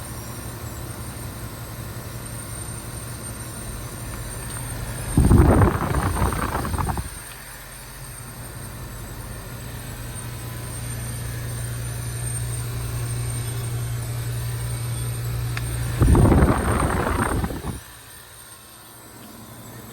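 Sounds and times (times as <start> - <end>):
heat pump compressor humming: 4.4 - 7.4, 12.6 - 18.3
refrigerant rushing whoosh: 5.2 - 7.2, 15.8 - 17.9.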